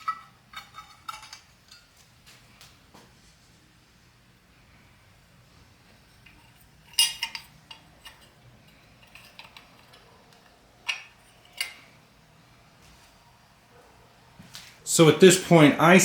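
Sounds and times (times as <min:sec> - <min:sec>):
metal tools clinking: 0:00.0 - 0:01.9, 0:06.2 - 0:11.9.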